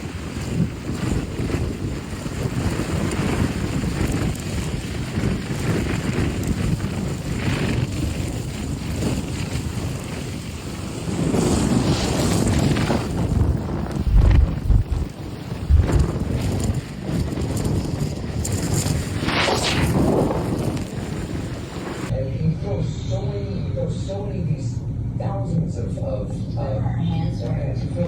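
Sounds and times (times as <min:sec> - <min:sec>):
blizzard wind gusting: 0:00.0 - 0:22.2.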